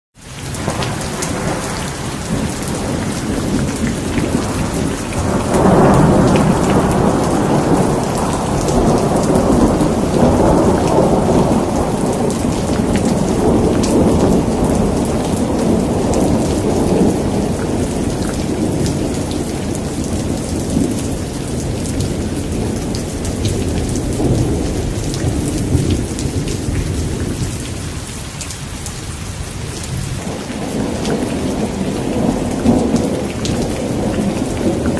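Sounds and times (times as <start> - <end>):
steady rain falling: 0.2 - 34.9
rolling thunder rumble: 0.5 - 34.9.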